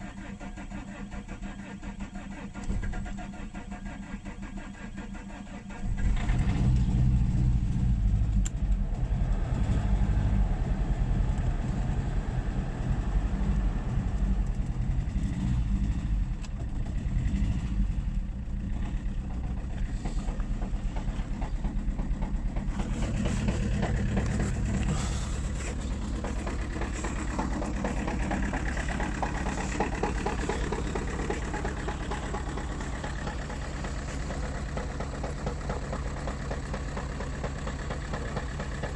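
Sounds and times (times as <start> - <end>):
turbodiesel engine running: 0.0 - 38.9.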